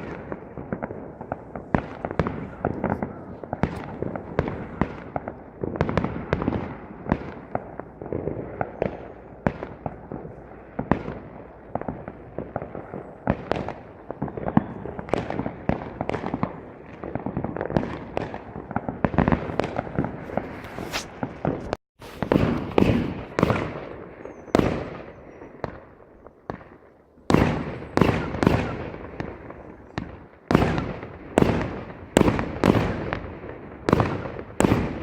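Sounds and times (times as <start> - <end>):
fireworks crackle: 0.0 - 9.2, 11.7 - 23.8
fireworks bangs and pops: 0.0 - 25.9, 26.5 - 35.0.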